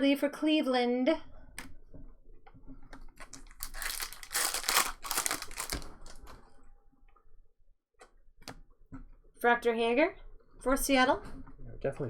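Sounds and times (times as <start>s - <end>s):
foil wrapper crinkling and tearing: 3.2s - 6.4s.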